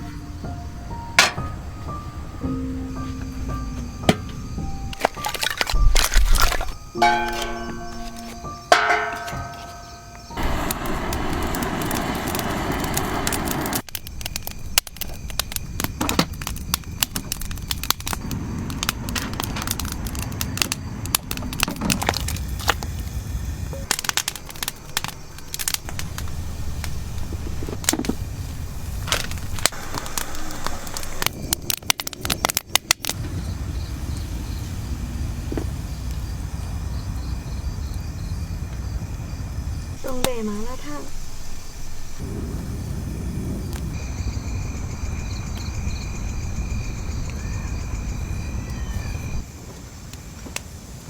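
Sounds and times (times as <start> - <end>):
bonfire crackling and popping: 3.2 - 51.0
steady rushing noise: 10.3 - 13.9.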